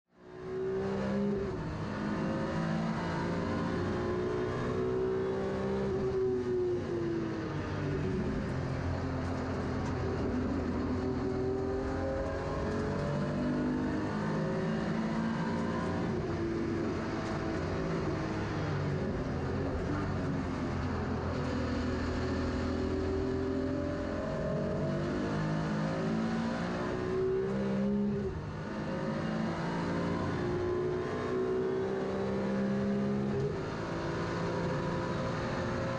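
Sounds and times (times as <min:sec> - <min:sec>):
race car engine at full load: 0:00.1 - 0:35.9.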